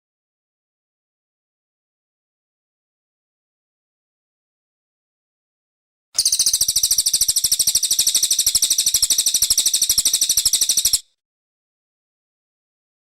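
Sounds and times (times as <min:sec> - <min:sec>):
bird singing high-pitched trill: 0:06.2 - 0:11.1.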